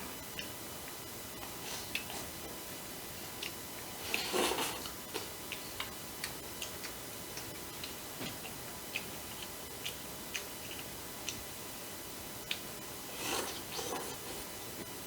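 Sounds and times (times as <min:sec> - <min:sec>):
chewing crisp fried food: 0:00.3 - 0:02.6, 0:03.2 - 0:11.5.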